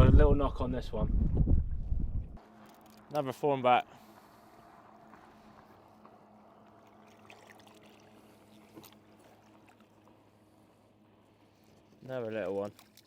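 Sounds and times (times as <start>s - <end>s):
water lapping and trickling: 2.4s - 3.2s, 3.9s - 13.0s.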